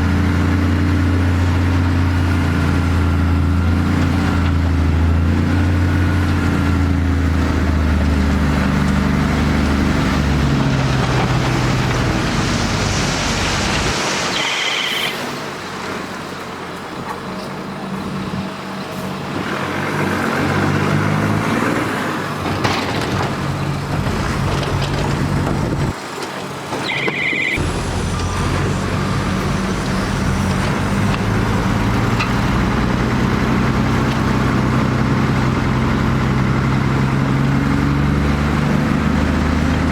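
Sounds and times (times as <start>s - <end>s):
heavy diesel machinery engines: 0.0s - 39.9s
short high-pitched squeal: 13.4s - 15.4s.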